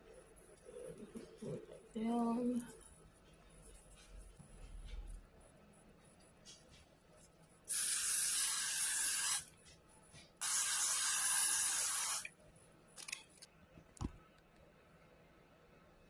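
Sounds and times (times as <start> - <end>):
hair spray spraying: 7.7 - 9.5, 10.4 - 12.3.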